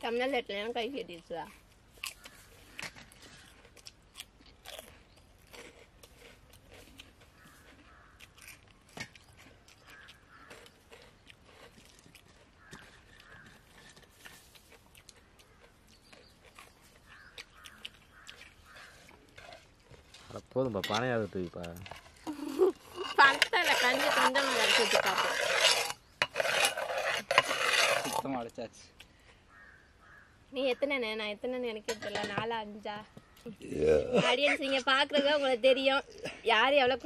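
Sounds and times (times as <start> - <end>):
chewing and crunching food: 1.1 - 29.8
birds calling: 2.0 - 4.2, 7.2 - 8.4, 9.2 - 11.3, 12.5 - 13.9, 15.2 - 19.6, 29.1 - 31.3
steel tumblers and plates clinking: 20.8 - 28.3, 31.9 - 32.5.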